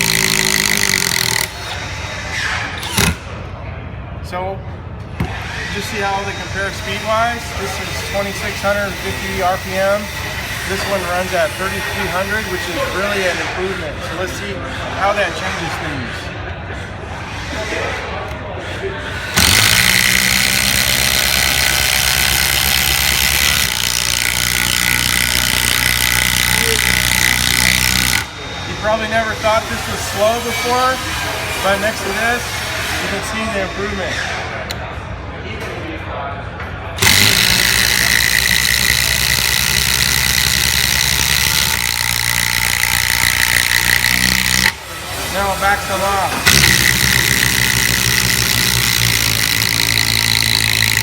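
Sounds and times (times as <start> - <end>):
impact driver hammering screw: 0.0 - 1.7, 2.8 - 3.2, 19.4 - 28.3, 37.0 - 51.0
high whine: 37.0 - 51.0.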